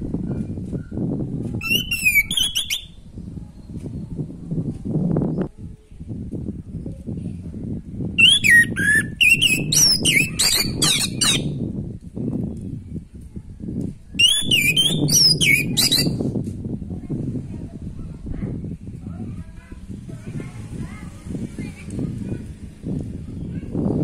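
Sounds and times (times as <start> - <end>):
thrush singing whistled phrases: 1.6 - 3.0, 8.2 - 11.5, 14.2 - 16.2.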